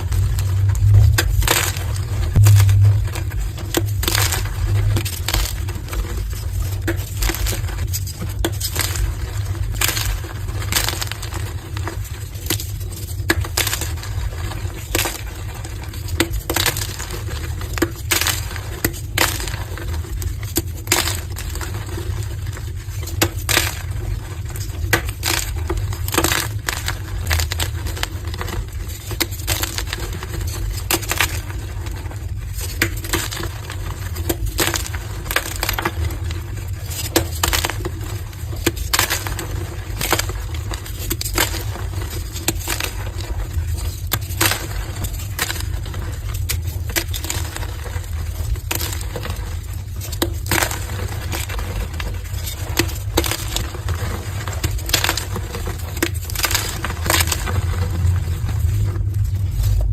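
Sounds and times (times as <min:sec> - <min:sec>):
steady low hum: 0:00.0 - 0:15.9, 0:55.3 - 0:59.9
chalk blocks crunching: 0:00.0 - 0:59.9.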